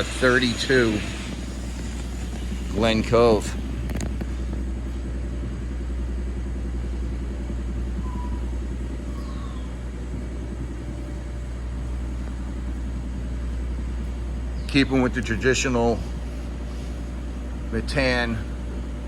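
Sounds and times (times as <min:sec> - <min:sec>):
low background rumble: 0:00.0 - 0:19.0
faint high chirps: 0:07.9 - 0:11.5.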